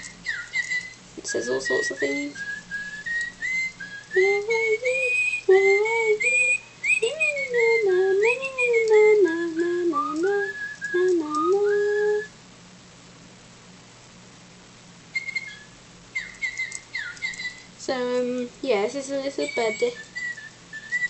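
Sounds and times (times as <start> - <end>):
toy bird playing whistled tune: 0.0 - 8.9, 9.5 - 12.3, 15.1 - 17.7, 19.4 - 21.0.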